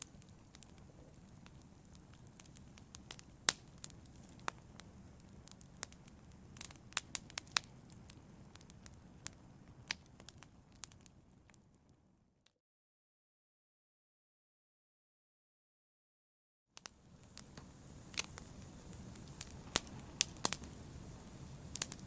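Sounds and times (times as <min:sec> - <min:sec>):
wood fire crackling and popping: 0:00.0 - 0:11.9, 0:16.8 - 0:22.0
flames rushing: 0:16.8 - 0:22.0.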